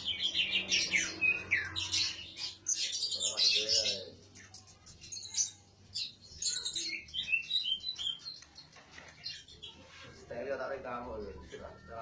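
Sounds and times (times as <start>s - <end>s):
songbird singing: 0.0s - 10.2s.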